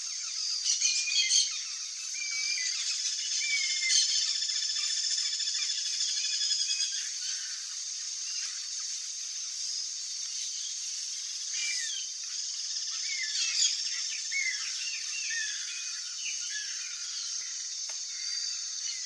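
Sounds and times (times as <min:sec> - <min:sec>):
steady high hiss: 0:00.0 - 0:19.0
birds chirping: 0:10.3 - 0:19.0.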